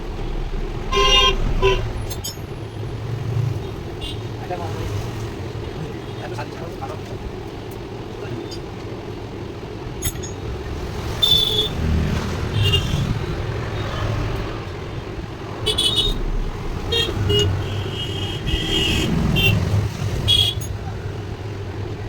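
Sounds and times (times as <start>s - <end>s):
road traffic: 0.0s - 22.0s
vehicle horn toots: 0.9s - 2.1s, 15.6s - 20.7s.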